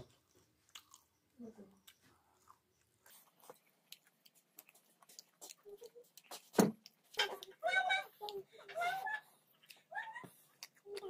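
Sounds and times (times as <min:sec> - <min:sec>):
person chewing: 0:00.1 - 0:11.0
thump: 0:06.5 - 0:06.8.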